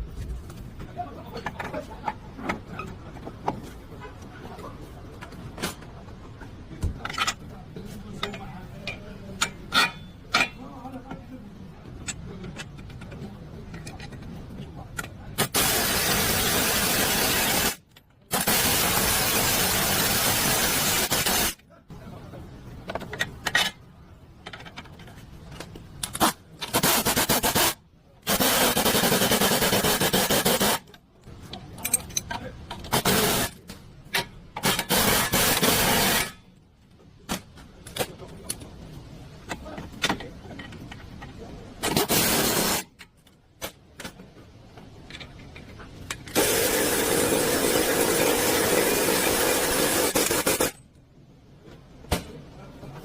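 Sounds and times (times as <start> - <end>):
metal parts clicking and scraping: 7.0 - 7.5, 8.2 - 10.6, 12.0 - 15.5, 22.9 - 27.8, 30.6 - 36.6, 39.4 - 46.5
hissing air tool: 46.4 - 50.8.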